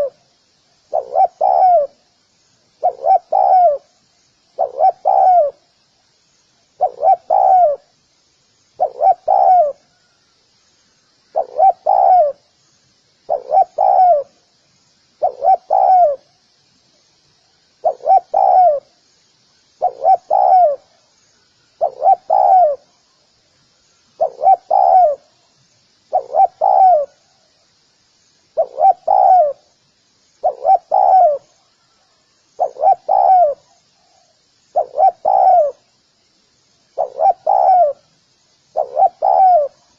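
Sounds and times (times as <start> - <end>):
dove cooing: 0.0 - 0.2, 0.9 - 2.0, 2.8 - 3.9, 4.6 - 5.6, 6.8 - 7.9, 8.8 - 9.9, 11.3 - 12.4, 13.3 - 14.3, 15.2 - 16.3, 17.8 - 18.9, 19.8 - 20.9, 21.8 - 22.9, 24.2 - 25.3, 26.1 - 27.2, 28.6 - 29.7, 30.4 - 31.9, 32.6 - 35.8, 37.0 - 38.1, 38.7 - 39.9.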